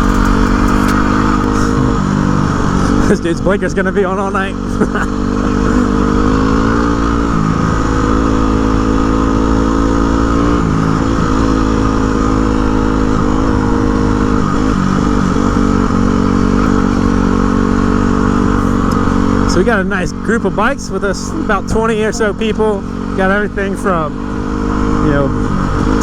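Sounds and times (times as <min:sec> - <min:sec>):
low wind rumble: 0:00.0 - 0:04.3
motorcycle engine running: 0:00.0 - 0:26.0.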